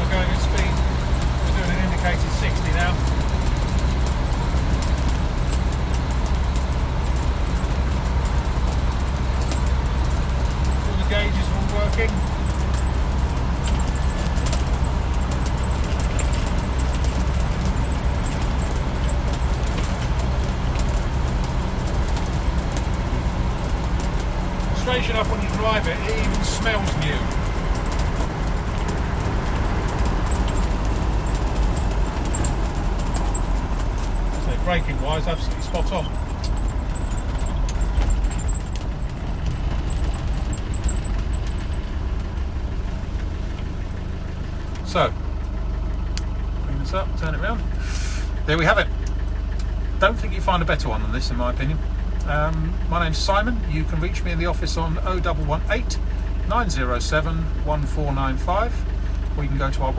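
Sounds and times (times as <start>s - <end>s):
small ticks and rattles: 0.0s - 44.8s
diesel engine running: 0.0s - 59.9s
road and wind noise: 0.0s - 59.9s.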